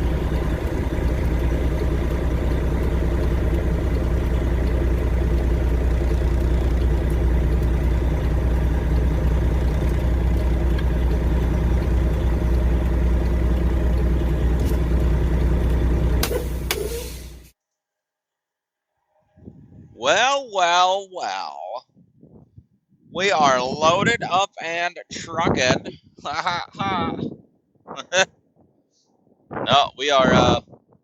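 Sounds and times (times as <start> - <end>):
diesel truck engine idling: 0.0 - 17.6.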